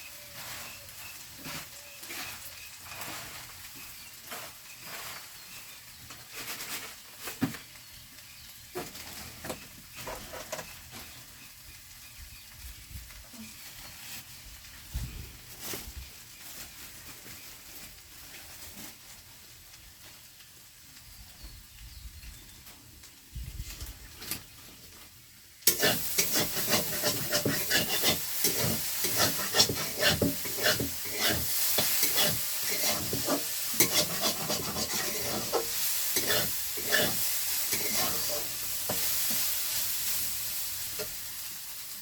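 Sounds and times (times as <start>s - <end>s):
utensil clicking and scraping: 25.7s - 39.0s
food sizzling in a pan: 25.7s - 42.0s.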